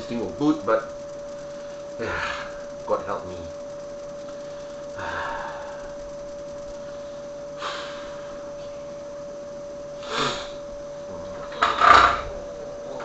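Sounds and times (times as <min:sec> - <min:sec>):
steady high-pitched whine: 0:00.0 - 0:13.0
soft breath-like rush: 0:04.2 - 0:09.0.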